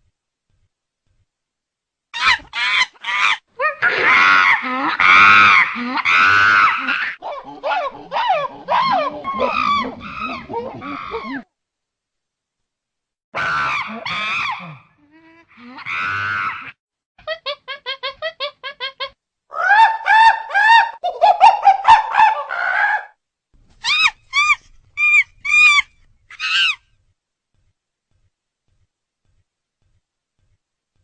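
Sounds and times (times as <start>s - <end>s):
chimpanzee hooting and shrieking: 2.2s - 11.5s, 13.4s - 14.8s, 19.5s - 23.2s, 23.8s - 26.8s.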